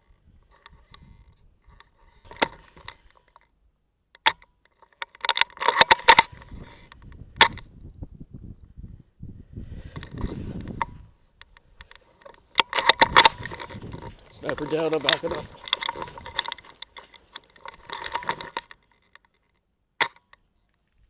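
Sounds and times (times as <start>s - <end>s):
low rumbling handling noise: 5.4s - 19.3s.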